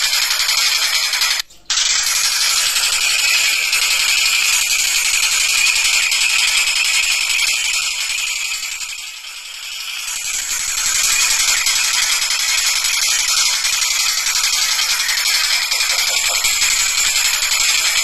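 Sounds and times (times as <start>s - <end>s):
kingfisher rattling call: 13.6s - 17.5s.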